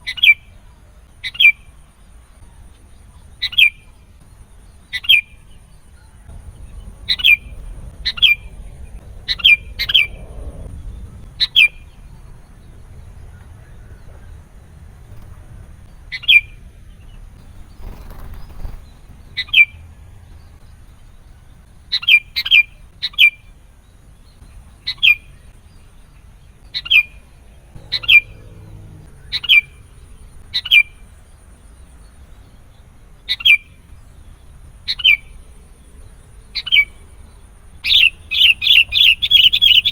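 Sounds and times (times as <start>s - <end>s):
bird sharp falling calls: 13.3s - 19.8s, 27.8s - 30.9s, 37.8s - 39.9s.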